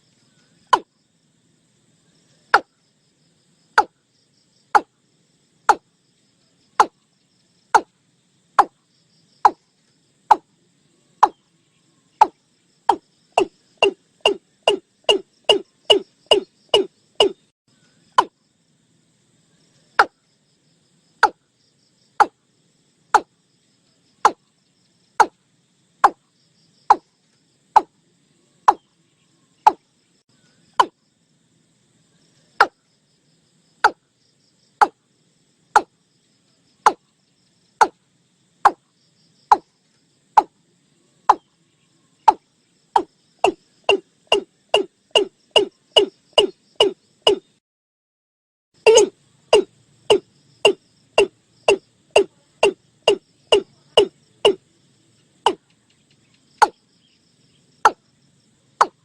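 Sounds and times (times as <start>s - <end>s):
watercock calling: 12.2s - 17.4s, 48.8s - 54.6s.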